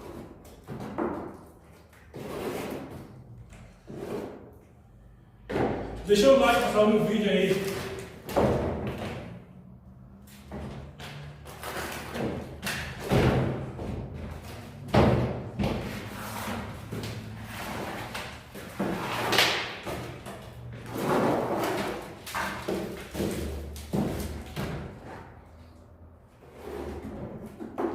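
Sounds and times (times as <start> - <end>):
plaster thuds and scraping: 0.0 - 4.5, 10.5 - 25.3, 26.4 - 27.9.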